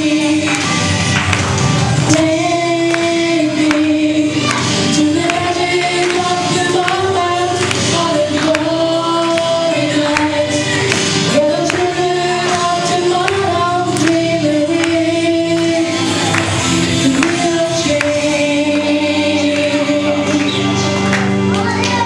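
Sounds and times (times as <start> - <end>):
backing track with steady beat: 0.0 - 22.0
voices singing long notes: 1.9 - 21.5.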